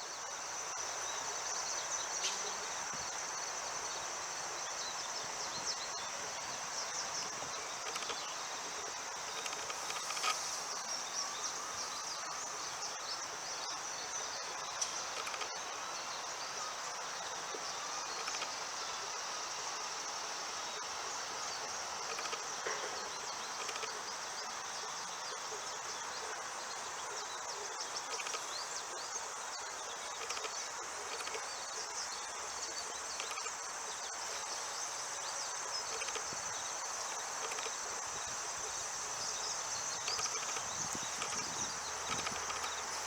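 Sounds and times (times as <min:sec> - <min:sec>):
insects chirping: 0:00.0 - 0:43.0.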